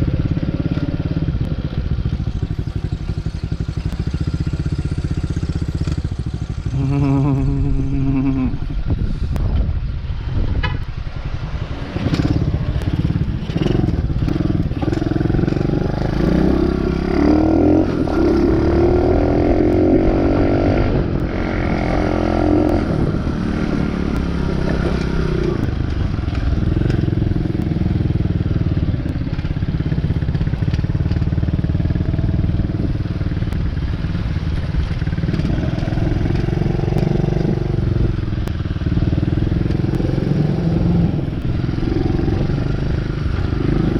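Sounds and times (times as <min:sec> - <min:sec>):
dirt bike engine running: 0:00.0 - 0:09.6, 0:11.1 - 0:43.9.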